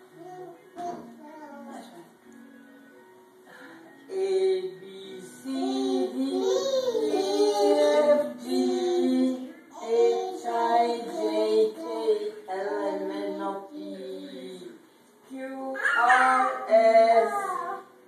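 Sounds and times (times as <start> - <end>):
child singing: 5.4 - 14.7, 15.8 - 17.8.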